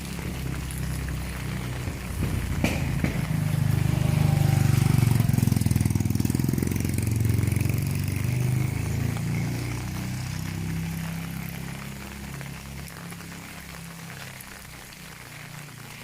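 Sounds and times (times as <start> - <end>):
vehicle engine passing by: 0.0 - 14.9.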